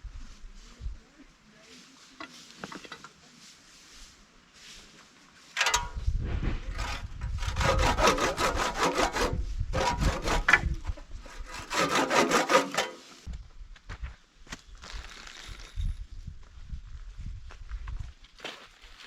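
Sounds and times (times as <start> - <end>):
wood being sawn by hand: 6.7 - 13.2.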